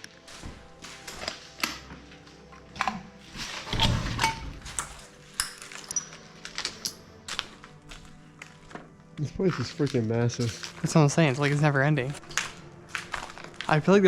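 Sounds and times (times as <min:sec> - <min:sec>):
footsteps on debris: 0:00.2 - 0:02.5, 0:04.5 - 0:14.0
clicks clinks and knocks: 0:03.7 - 0:07.0.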